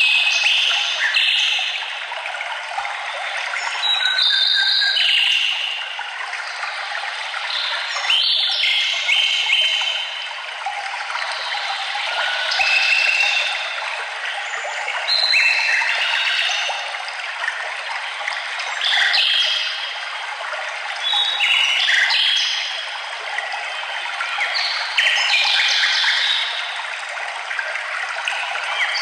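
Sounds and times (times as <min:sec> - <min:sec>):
songbirds singing: 0:11.2 - 0:16.9.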